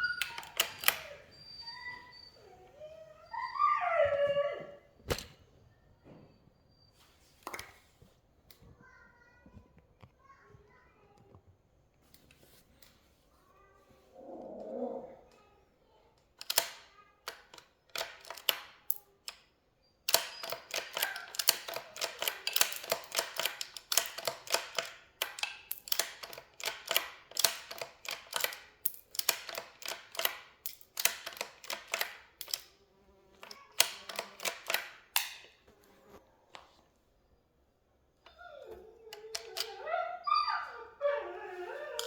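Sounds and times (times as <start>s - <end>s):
sharp clicks and taps: 0.0s - 1.2s, 16.4s - 19.4s, 20.1s - 32.8s, 33.4s - 35.6s.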